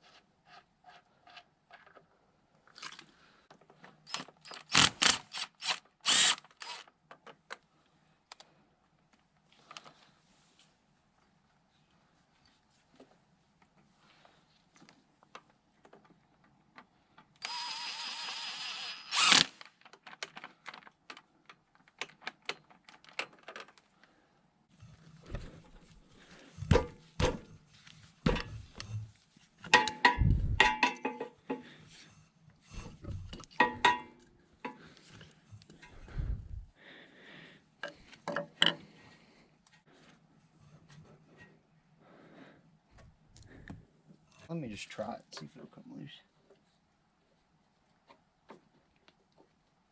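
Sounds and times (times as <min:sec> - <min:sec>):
tool whirr: 0:04.1 - 0:06.9, 0:17.4 - 0:19.6.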